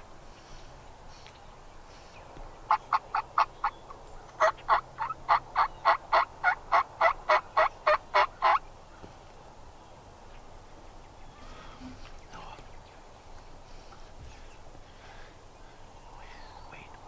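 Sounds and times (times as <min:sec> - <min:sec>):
turkey yelps: 0:04.4 - 0:08.6.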